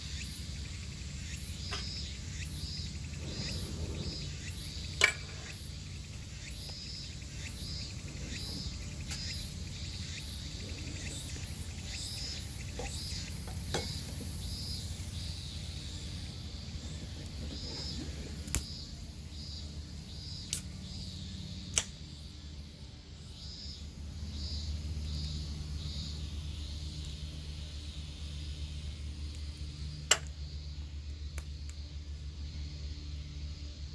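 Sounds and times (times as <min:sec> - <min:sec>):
insects chirping: 0:00.0 - 0:33.9
low outdoor rumble: 0:00.0 - 0:33.9
firewood popping in campfire: 0:17.0 - 0:18.7, 0:29.2 - 0:30.6.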